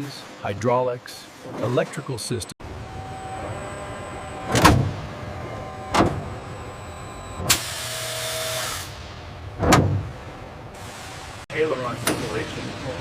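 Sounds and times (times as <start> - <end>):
low hum: 2.6 - 11.4.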